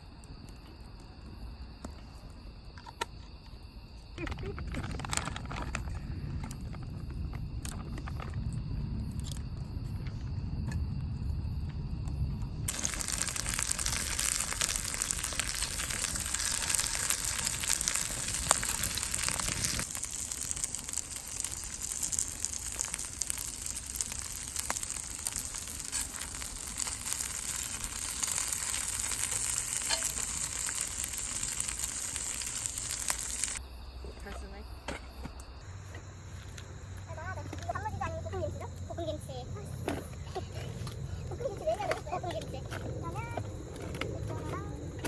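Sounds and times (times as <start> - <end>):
low rumble: 4.9 - 21.3
food sizzling in a pan: 12.7 - 33.6.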